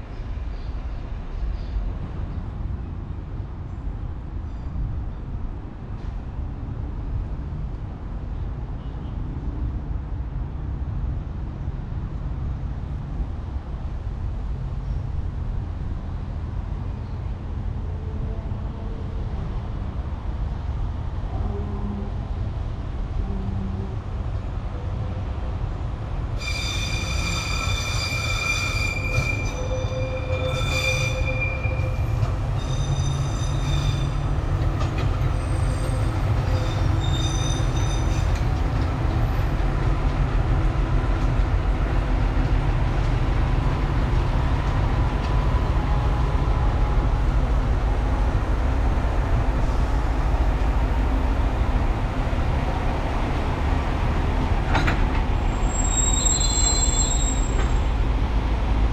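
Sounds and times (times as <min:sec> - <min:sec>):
low rumble of train: 0:00.0 - 0:58.9
rail vehicle squealing: 0:26.3 - 0:41.3, 0:54.7 - 0:58.2.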